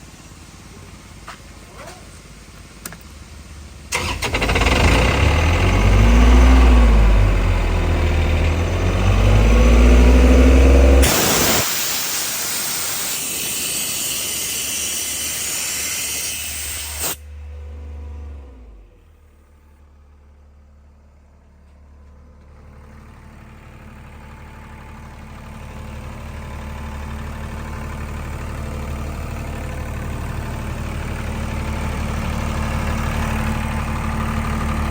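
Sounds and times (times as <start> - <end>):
diesel compressor engine running: 0.0 - 34.9
loud steady hiss: 11.0 - 17.2.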